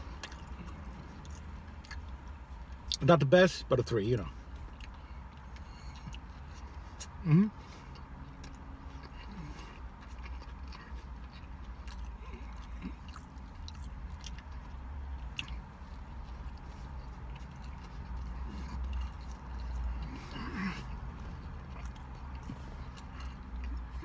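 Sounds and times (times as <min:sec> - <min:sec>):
person chewing: 0:00.0 - 0:03.0, 0:04.4 - 0:24.0.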